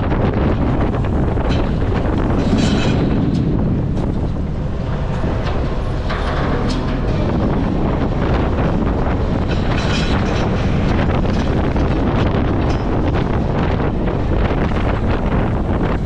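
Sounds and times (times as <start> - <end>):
garbage truck engine rumbling: 0.0 - 16.0
wind buffeting microphone: 0.0 - 16.0
metal clanks: 0.4 - 16.0.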